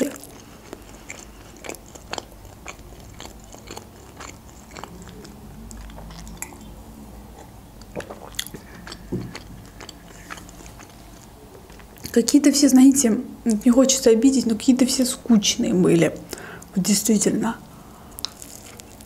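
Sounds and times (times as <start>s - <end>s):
person chewing and biting food: 0.0s - 6.7s, 7.3s - 12.1s, 18.1s - 19.0s.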